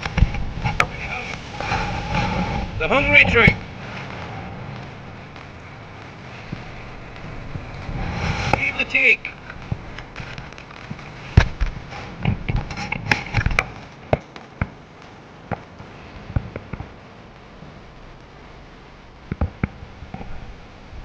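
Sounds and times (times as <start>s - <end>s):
sharp knocks and clicks: 9.4s - 16.9s, 19.3s - 20.3s.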